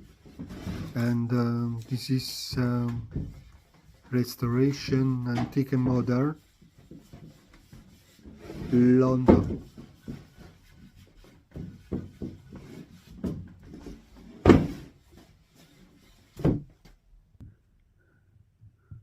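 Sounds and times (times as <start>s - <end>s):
wood knocks and clunks: 2.6s - 3.8s, 4.9s - 7.7s, 8.4s - 10.5s, 11.5s - 15.0s, 16.3s - 17.6s.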